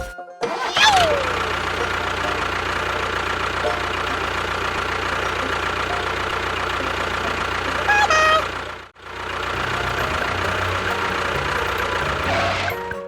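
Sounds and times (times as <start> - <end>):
small vehicle engine running: 0.0 - 13.0
two-note horn: 7.8 - 8.6.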